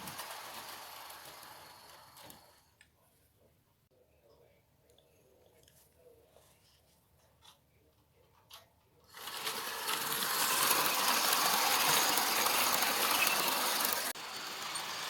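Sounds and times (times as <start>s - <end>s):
train wheels clattering: 0.0s - 2.6s, 9.2s - 15.0s.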